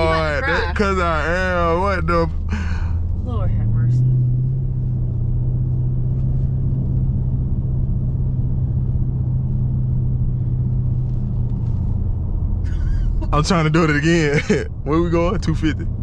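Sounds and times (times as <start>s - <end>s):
car exhaust drone from cabin: 0.0s - 16.0s.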